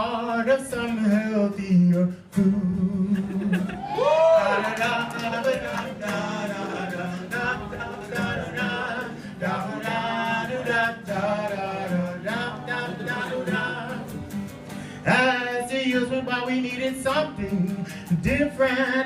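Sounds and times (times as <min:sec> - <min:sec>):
voices singing: 0:03.0 - 0:14.4.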